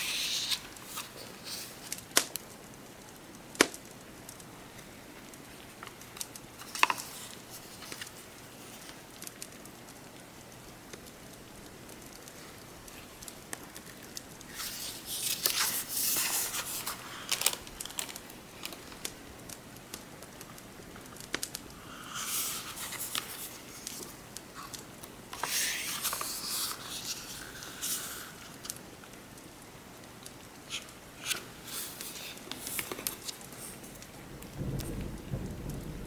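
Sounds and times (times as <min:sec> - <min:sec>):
book pages turning: 0:00.0 - 0:02.3, 0:05.6 - 0:09.6, 0:11.8 - 0:28.8, 0:30.6 - 0:34.1
paper clicks and taps: 0:05.8 - 0:08.2, 0:11.9 - 0:28.8
fire crackling: 0:10.6 - 0:27.4
rain: 0:34.2 - 0:36.0.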